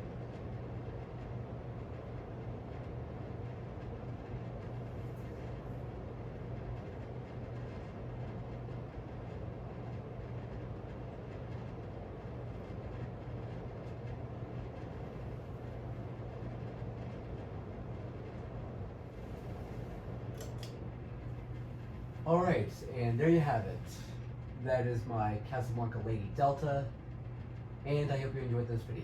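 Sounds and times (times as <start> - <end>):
ceiling fan air rush: 0.0 - 29.0
fan motor hum: 0.0 - 29.0.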